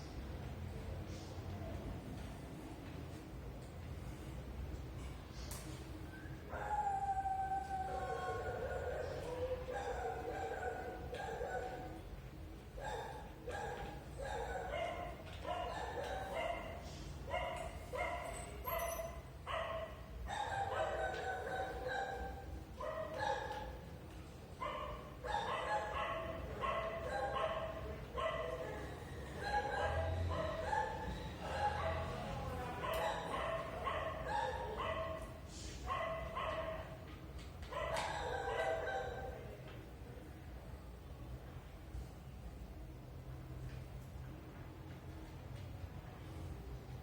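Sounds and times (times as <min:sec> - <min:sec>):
dog barking: 0:06.5 - 0:12.0, 0:12.8 - 0:23.8, 0:24.6 - 0:37.0, 0:37.7 - 0:39.4.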